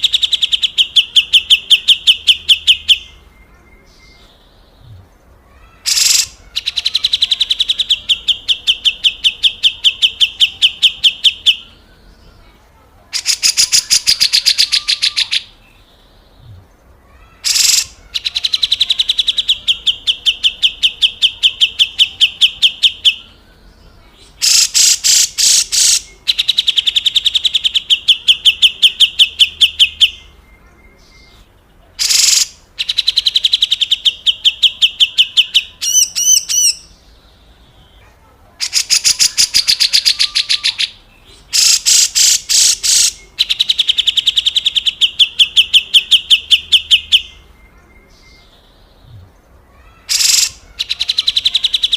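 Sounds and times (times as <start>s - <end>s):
bird warbled phrase: 0.0s - 15.6s, 16.4s - 23.4s, 38.0s - 48.4s, 49.0s - 51.9s
bulbul rattling scold call: 5.6s - 11.6s, 17.2s - 22.8s, 49.8s - 51.9s.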